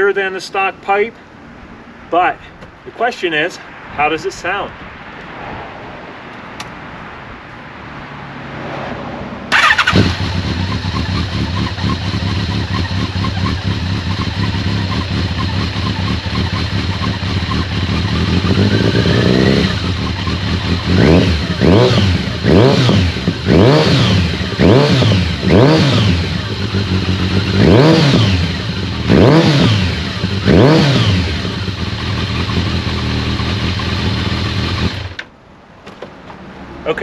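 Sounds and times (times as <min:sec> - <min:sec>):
motorcycle engine idling and revving: 0:09.4 - 0:35.4.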